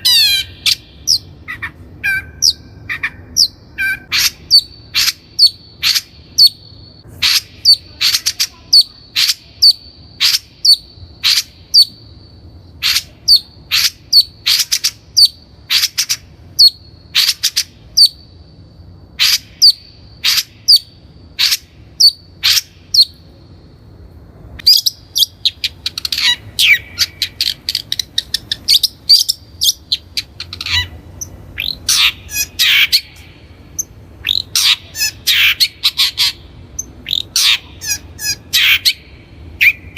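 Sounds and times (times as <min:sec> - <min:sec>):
shrike calling harsh notes: 0:24.9 - 0:39.9.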